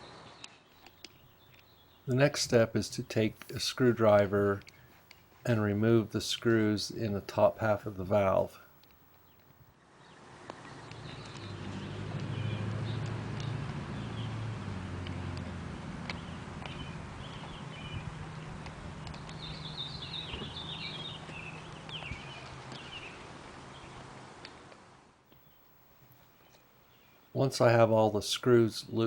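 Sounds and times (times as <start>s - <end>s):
birds chirping: 0.7s - 24.0s, 25.4s - 29.0s
low steady hum: 0.8s - 9.7s.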